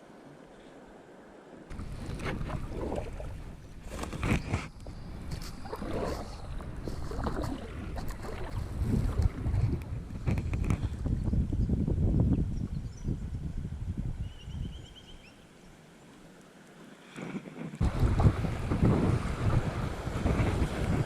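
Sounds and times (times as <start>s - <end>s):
water splashing and rushing: 0.0s - 11.0s, 15.8s - 21.0s
scratching noise on microphone: 1.7s - 11.4s, 17.2s - 21.0s
wind rumbling on microphone: 1.7s - 15.3s, 17.2s - 21.0s.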